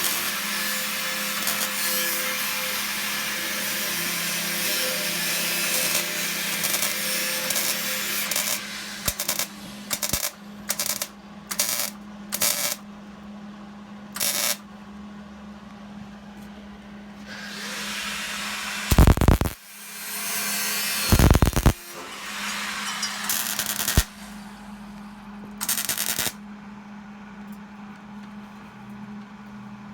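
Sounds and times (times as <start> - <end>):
harsh hissing metalworking tool: 0.0 - 12.8, 17.3 - 24.9
short tool bursts: 18.9 - 19.6, 21.0 - 24.4.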